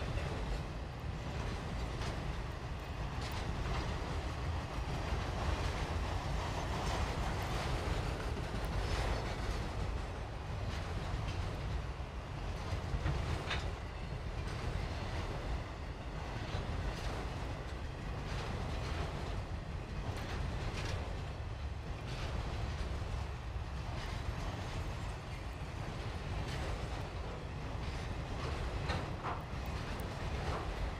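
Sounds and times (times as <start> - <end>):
train wheels rumbling on rail: 0.0 - 30.9
wheels clicking over rail joints: 0.0 - 30.9.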